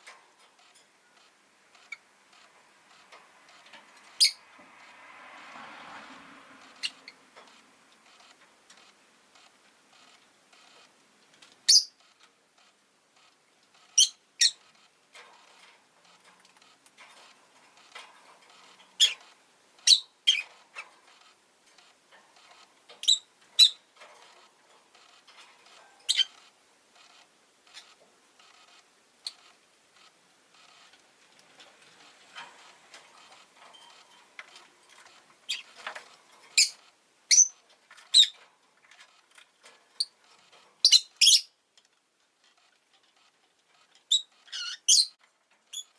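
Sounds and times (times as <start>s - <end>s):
lovebird high chirps: 4.2s - 4.4s, 11.7s - 12.0s, 13.9s - 14.6s, 19.0s - 20.5s, 23.0s - 23.8s, 26.1s - 26.4s, 35.5s - 35.7s, 36.5s - 38.4s, 40.8s - 41.5s, 44.1s - 45.9s.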